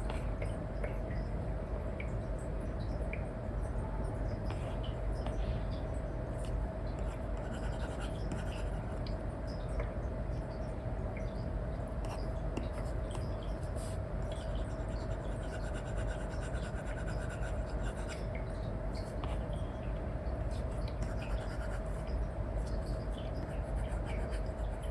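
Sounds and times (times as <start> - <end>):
faint hum: 0.0 - 24.9
stylus scratching and tapping: 20.6 - 24.9.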